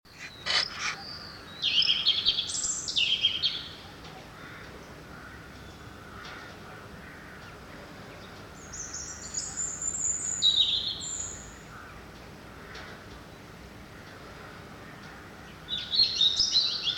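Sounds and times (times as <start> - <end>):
songbird singing: 0.1 - 4.3, 7.5 - 11.7, 15.0 - 16.9
faint background noise: 0.1 - 16.9.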